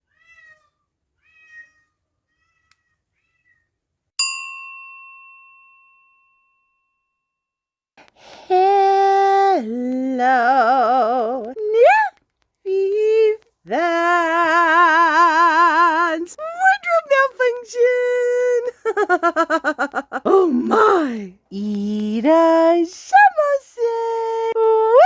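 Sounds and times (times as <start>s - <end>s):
bell ringing: 4.2s - 7.3s.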